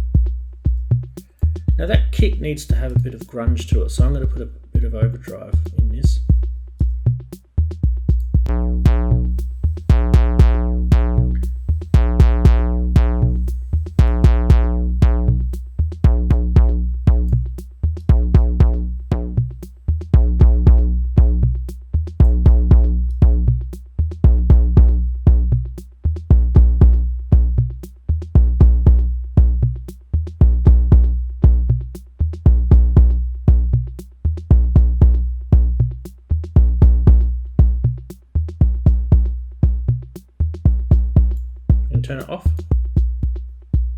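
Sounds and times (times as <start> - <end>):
distorted kick drum boom: 0.0 - 7.2, 7.8 - 21.6, 22.2 - 25.7, 26.3 - 27.7, 28.4 - 29.8, 30.4 - 31.9, 32.5 - 33.9, 34.5 - 36.0, 36.6 - 38.0, 38.6 - 40.0, 40.7 - 43.9
hi-hat ticks: 0.0 - 10.5, 40.0 - 43.9
drum machine beat: 0.0 - 43.9.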